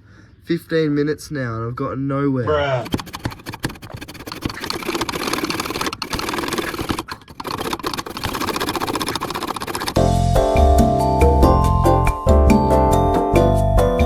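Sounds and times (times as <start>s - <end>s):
hacksaw cutting steel pipe: 2.8s - 10.0s.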